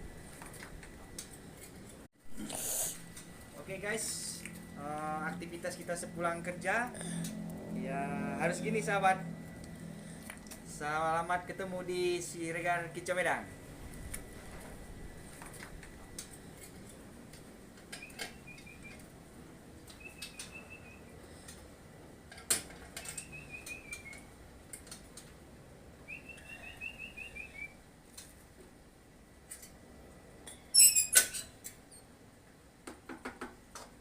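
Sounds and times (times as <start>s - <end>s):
sharp high bird chirps: 18.0s - 19.0s, 20.0s - 21.1s, 23.2s - 24.2s, 26.1s - 27.8s
songbirds trilling: 19.9s - 21.1s, 23.0s - 24.3s, 26.1s - 27.8s.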